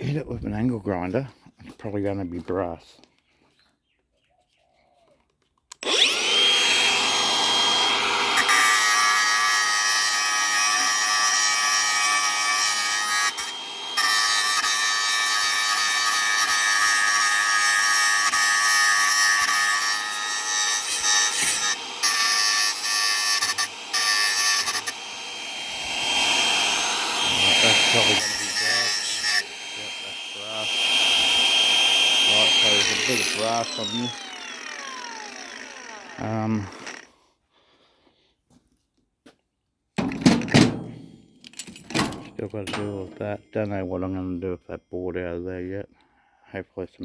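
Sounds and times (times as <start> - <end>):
angle grinder grinding metal: 5.8 - 37.1, 41.6 - 43.4.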